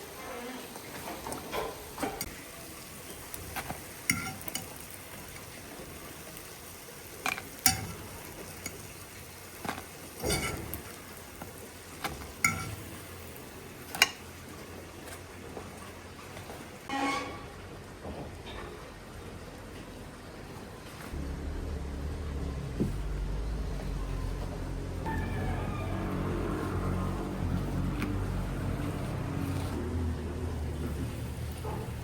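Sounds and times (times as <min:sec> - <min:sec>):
food sizzling in a frying pan: 0:00.1 - 0:14.6
metal utensil clinking against pan: 0:04.1 - 0:04.8, 0:07.2 - 0:08.8, 0:10.2 - 0:10.8, 0:12.4 - 0:12.8.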